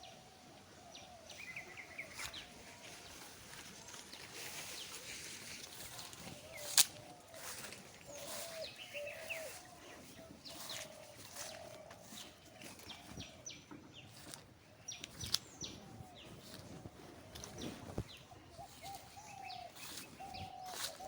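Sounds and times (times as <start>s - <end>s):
birds chirping: 0.0s - 21.0s
lower wavering bird call: 6.4s - 11.8s.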